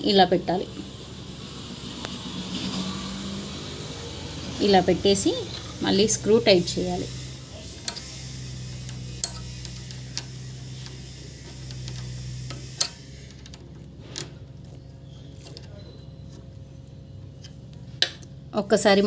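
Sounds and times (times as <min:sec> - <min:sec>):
low steady hum: 0:00.0 - 0:19.0
spanner clicking on metal screw: 0:06.7 - 0:14.4.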